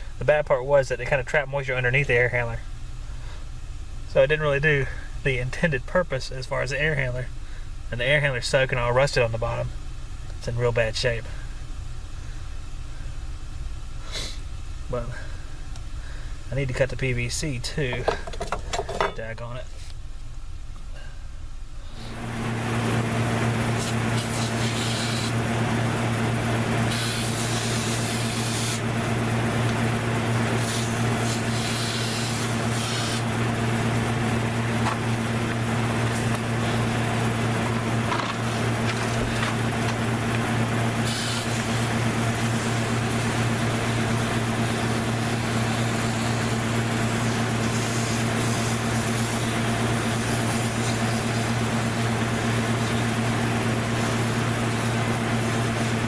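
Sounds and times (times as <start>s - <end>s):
machine motor humming: 22.0s - 56.0s.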